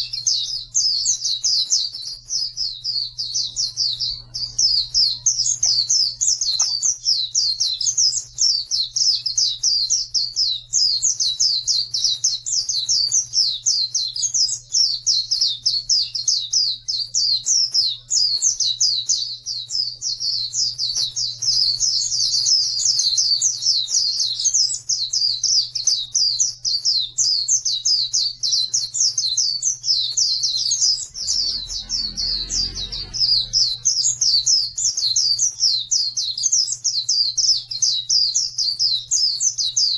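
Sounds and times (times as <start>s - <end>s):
bird twittering song: 0.0s - 39.9s
low hum: 30.8s - 35.3s
low rumble: 31.0s - 35.0s.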